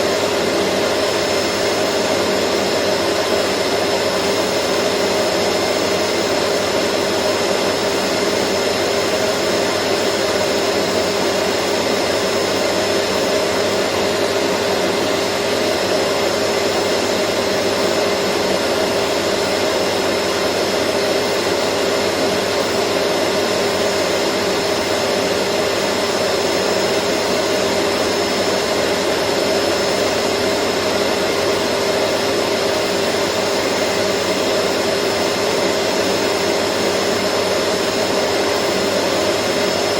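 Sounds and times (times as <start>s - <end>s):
vacuum cleaner motor running: 0.0s - 39.9s.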